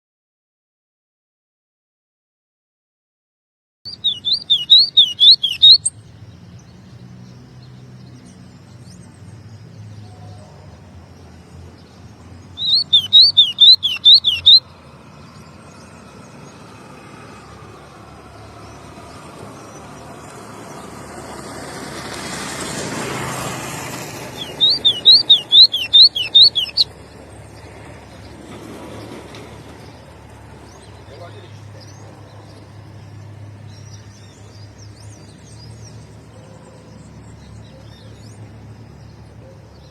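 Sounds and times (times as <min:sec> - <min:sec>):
bird singing fast high notes: 0:03.9 - 0:06.0, 0:12.5 - 0:14.7, 0:24.1 - 0:27.0.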